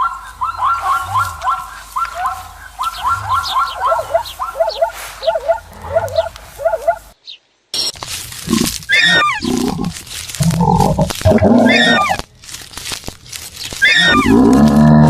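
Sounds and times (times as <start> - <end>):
longer animal calls: 0.0 - 7.2, 8.4 - 12.2, 13.7 - 15.0
short repeated animal calls: 0.7 - 7.1, 8.4 - 12.2, 13.7 - 14.6.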